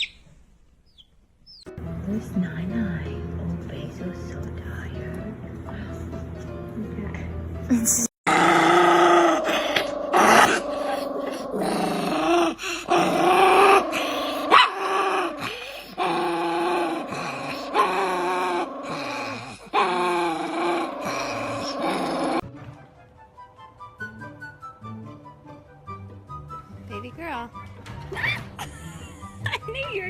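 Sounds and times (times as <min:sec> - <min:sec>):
dog whining and growling: 0:08.3 - 0:22.4.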